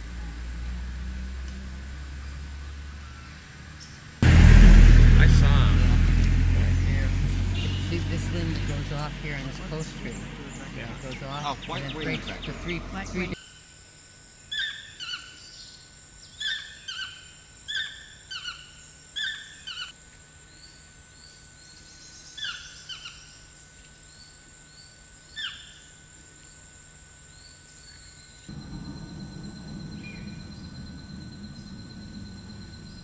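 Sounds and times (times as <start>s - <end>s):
noisy outdoor background: 0.0s - 33.0s
bird calling: 9.4s - 13.4s, 28.5s - 33.0s
high insect-like drone: 10.8s - 33.0s.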